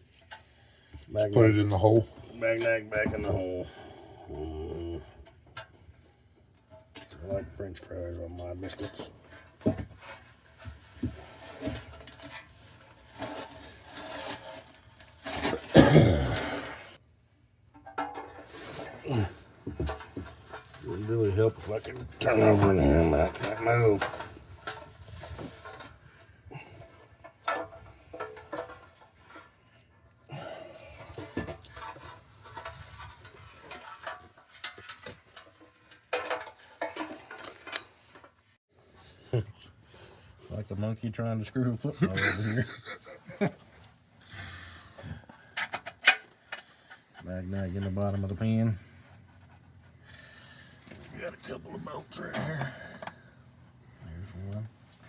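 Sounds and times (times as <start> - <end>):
tools rubbing and scraping: 8.7 - 15.8, 18.0 - 38.4.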